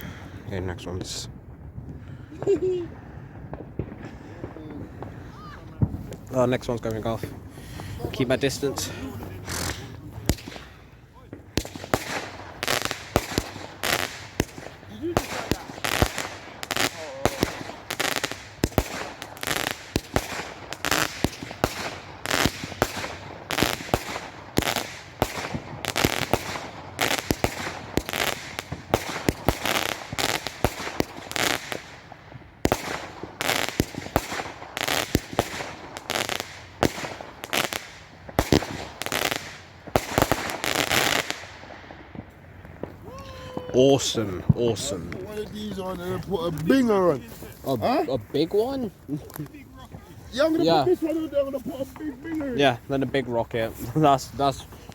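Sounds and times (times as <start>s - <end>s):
firework bangs in rapid run: 10.2s - 32.0s, 32.7s - 43.0s.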